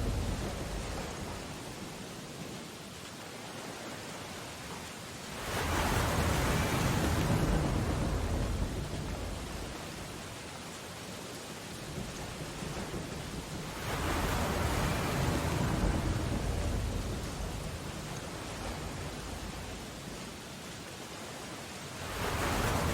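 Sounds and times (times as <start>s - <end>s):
ocean waves crashing: 0.0s - 2.5s, 3.2s - 22.9s
stormy sea rushing: 0.0s - 22.9s
rain on window glass: 5.2s - 20.9s.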